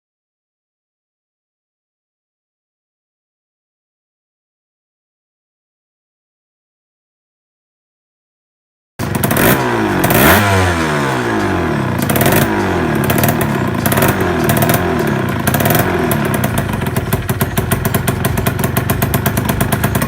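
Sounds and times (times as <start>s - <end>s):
two-stroke engine revving: 9.0s - 20.0s.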